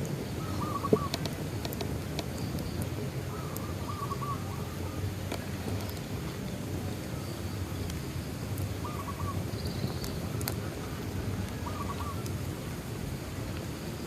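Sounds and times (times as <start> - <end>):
bonfire crackling and popping: 0.0 - 14.0
animal call: 0.4 - 1.2, 11.6 - 12.3.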